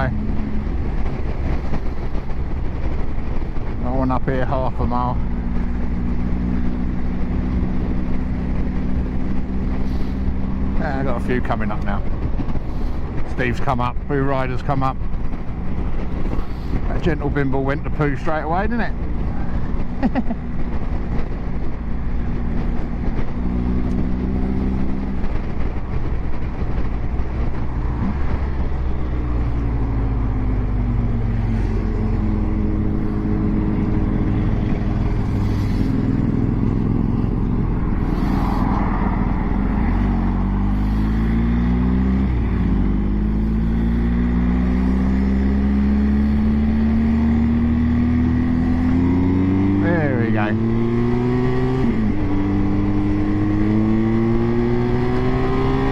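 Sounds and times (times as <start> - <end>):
motorcycle engine accelerating: 0.0 - 55.9
wind rush: 0.0 - 55.9.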